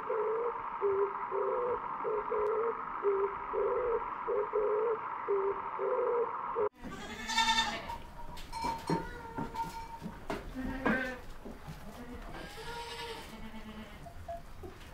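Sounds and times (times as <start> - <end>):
low cooing notes: 0.0 - 6.7
steady background hum: 0.0 - 14.9
goat bleating: 6.8 - 8.0, 10.4 - 14.1.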